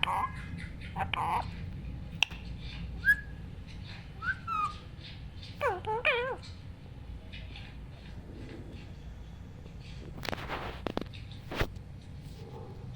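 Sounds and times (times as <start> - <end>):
parakeet whistled calls: 3.0 - 3.4, 4.2 - 4.8.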